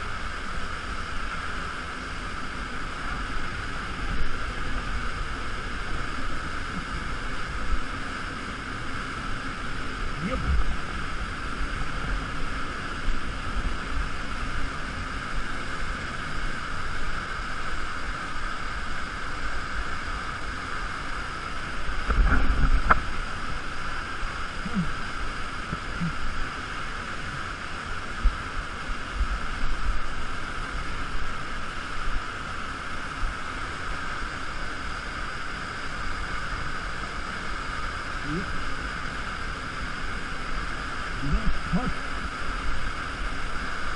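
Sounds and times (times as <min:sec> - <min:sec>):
low rumbling: 0:01.6 - 0:16.0.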